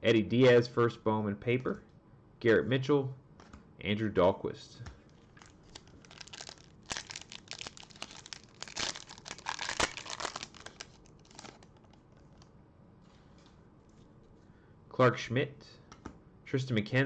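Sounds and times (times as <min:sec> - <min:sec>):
faint wrapper rustles: 0:05.0 - 0:14.1
card pack wrapper crinkling and tearing: 0:05.2 - 0:12.4.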